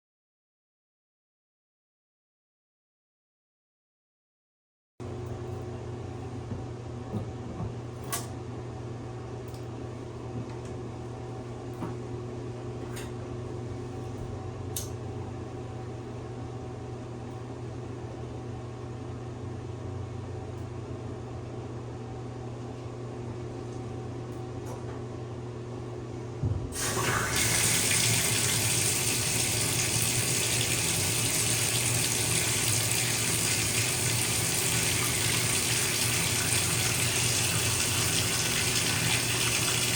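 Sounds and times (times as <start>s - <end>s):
water gushing into bathtub: 26.8s - 39.9s.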